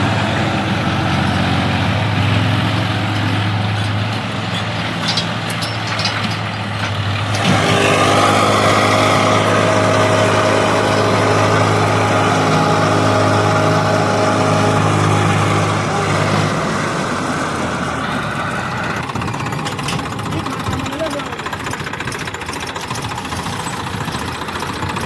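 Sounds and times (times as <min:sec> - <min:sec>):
heavy diesel engine running: 0:00.0 - 0:25.0.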